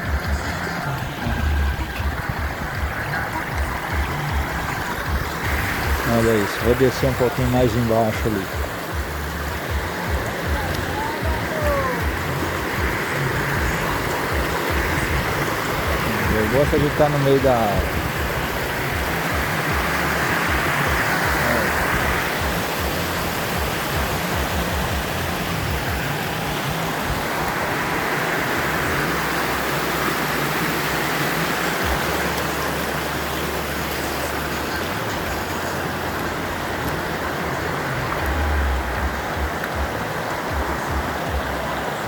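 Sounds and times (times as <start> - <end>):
low rumble: 0.0 - 6.1
water rushing over rocks: 0.0 - 42.0.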